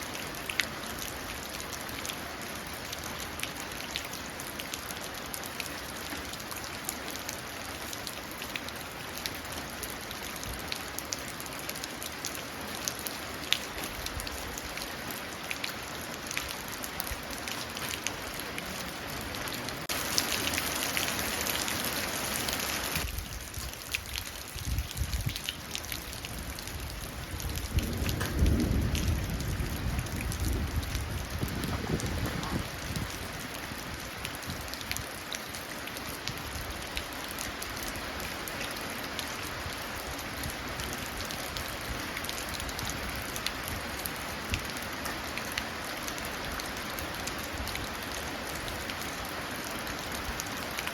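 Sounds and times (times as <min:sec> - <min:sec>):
steady rain falling: 0:00.0 - 0:50.9
low rumble of thunder: 0:26.4 - 0:33.2.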